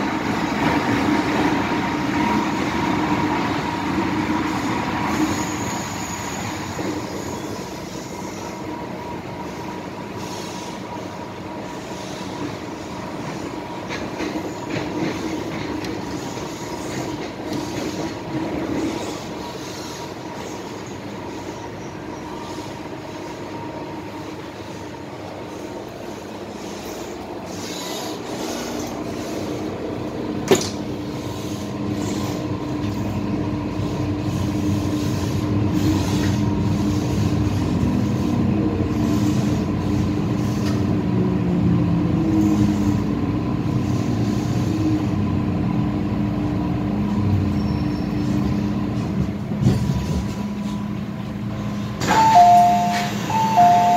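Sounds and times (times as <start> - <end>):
train equipment whine: 0.0 - 53.9
train wheels on rails: 0.0 - 53.9.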